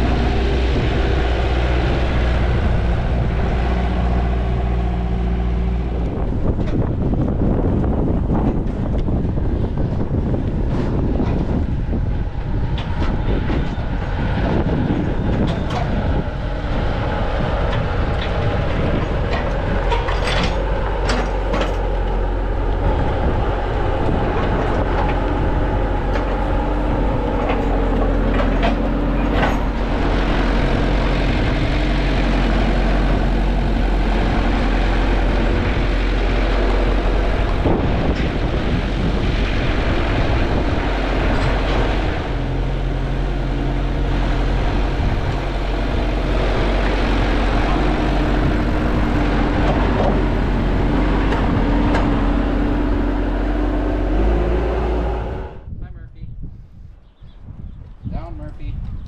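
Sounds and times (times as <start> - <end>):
vehicle engine running steadily: 0.0 - 59.0
knocks and rattles: 17.7 - 22.2, 24.2 - 38.9.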